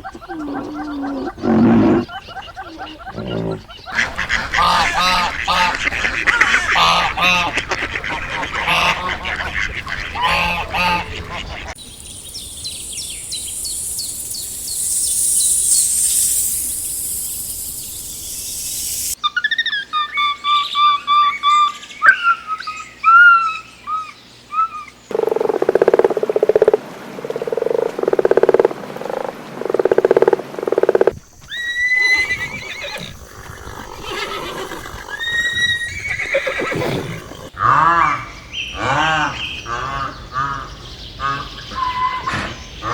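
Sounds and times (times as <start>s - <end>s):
mixed farm animal calls: 0.0s - 11.8s, 31.6s - 42.9s
high chirping calls: 11.7s - 19.4s.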